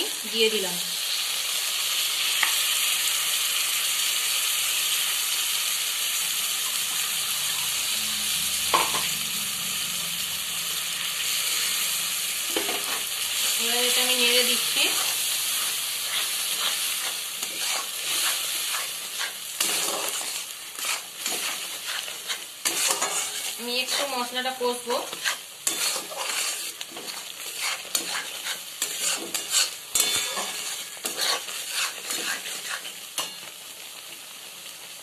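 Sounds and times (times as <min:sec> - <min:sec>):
paste sizzling in oil: 0:00.0 - 0:35.0
metal spatula scraping pan: 0:12.5 - 0:33.4.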